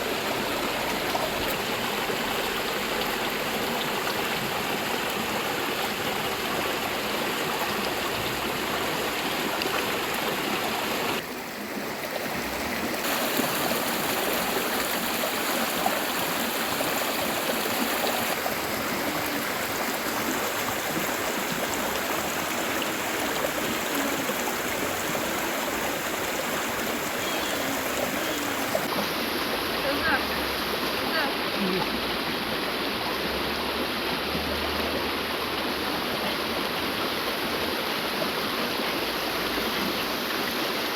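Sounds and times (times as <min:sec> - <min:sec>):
river water rushing over rocks: 0:00.0 - 0:40.9.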